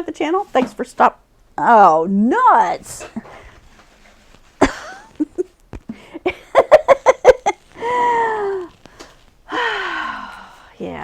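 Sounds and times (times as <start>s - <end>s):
woman laughing in short bursts: 4.6s - 5.5s, 6.2s - 8.6s.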